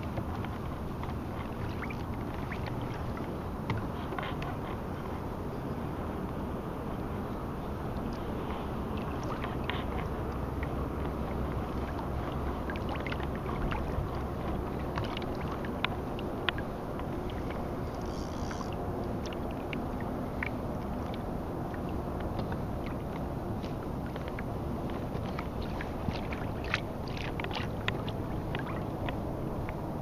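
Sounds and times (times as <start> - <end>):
steady rumbling noise: 0.0 - 30.0
water lapping against hull: 0.0 - 30.0
small clicks and ticks: 17.8 - 19.4.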